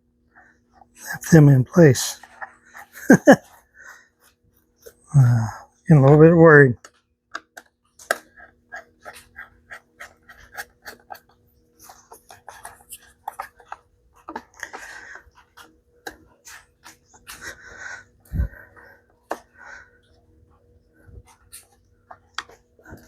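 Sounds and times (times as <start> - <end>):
faint steady hum: 0.0 - 23.0
parts and tool clicking and scraping: 6.8 - 17.6.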